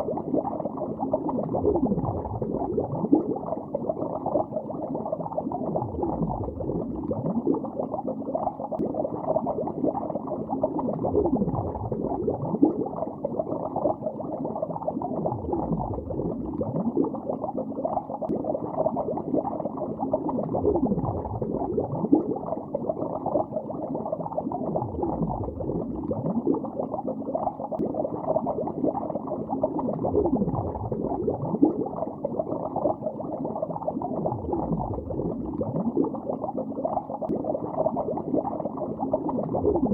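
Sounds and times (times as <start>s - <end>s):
deep bubbles gurgling down: 0.0s - 39.9s
underwater bubbling: 0.0s - 39.9s.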